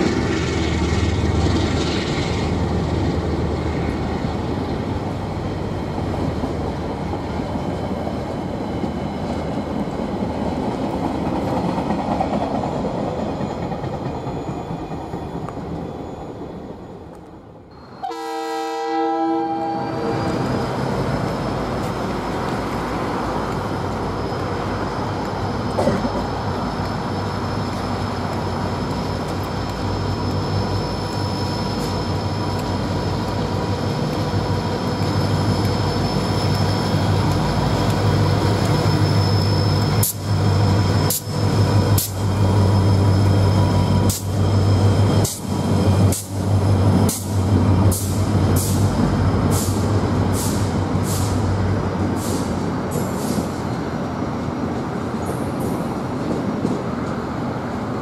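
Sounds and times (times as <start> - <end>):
approaching train rumble: 0.0 - 58.0
train wheel and rail noise: 0.0 - 58.0
diesel locomotive horn: 17.9 - 20.4.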